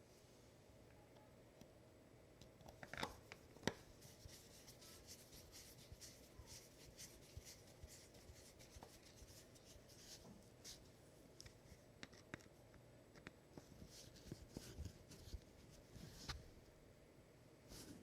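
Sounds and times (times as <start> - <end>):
faint scratching and rubbing: 3.8 - 12.3.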